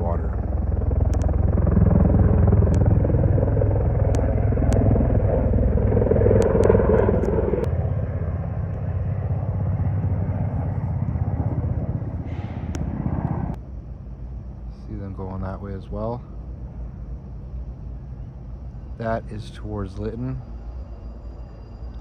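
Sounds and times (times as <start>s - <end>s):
helicopter rotor beating: 0.0s - 13.6s.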